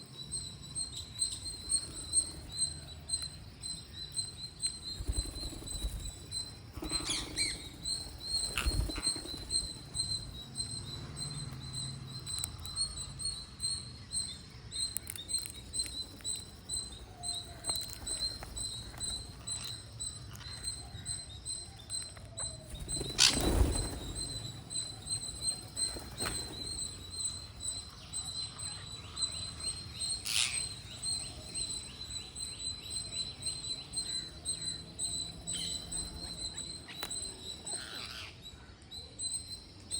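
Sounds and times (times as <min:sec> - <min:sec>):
parrots nibbling and cracking food: 0:14.9 - 0:16.5, 0:17.4 - 0:19.8.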